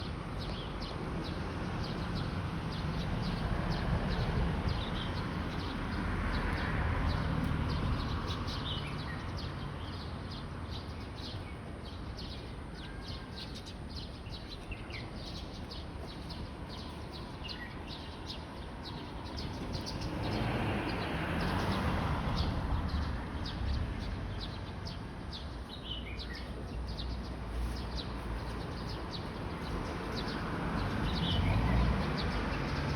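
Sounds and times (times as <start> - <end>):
small birds chirping: 0.3 - 32.9.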